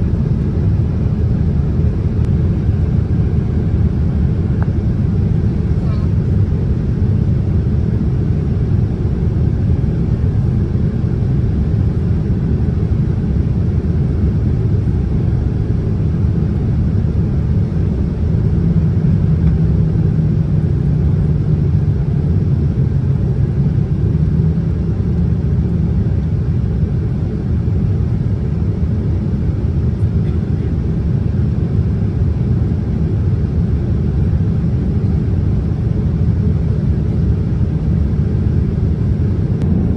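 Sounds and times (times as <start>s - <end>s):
low hum: 0.0s - 26.6s, 36.4s - 39.9s
airliner cabin rumble: 0.0s - 39.9s.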